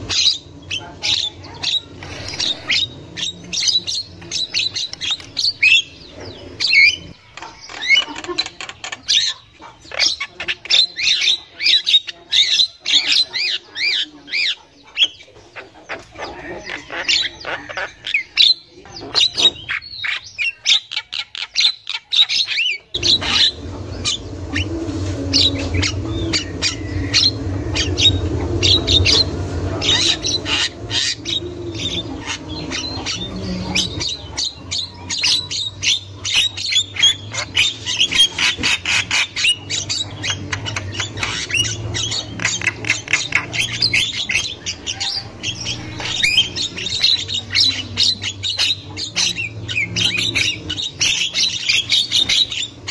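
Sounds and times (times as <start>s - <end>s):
birds chattering and squawking: 0.0s - 52.9s
low steady hum: 22.9s - 52.9s.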